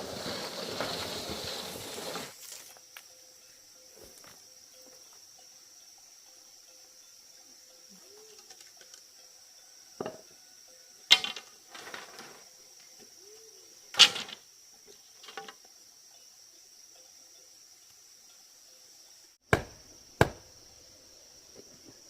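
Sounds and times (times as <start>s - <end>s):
steady insect drone: 0.0s - 22.0s
sharp knocks: 19.5s - 20.4s.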